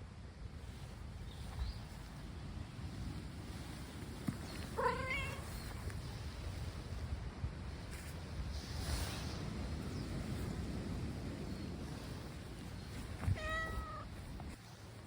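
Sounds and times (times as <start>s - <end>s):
cat meowing: 4.8s - 5.5s, 13.3s - 14.2s.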